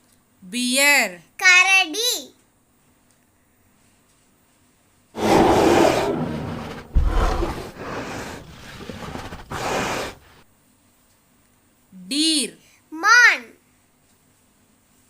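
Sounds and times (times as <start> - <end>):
bear growling: 5.2 - 10.4.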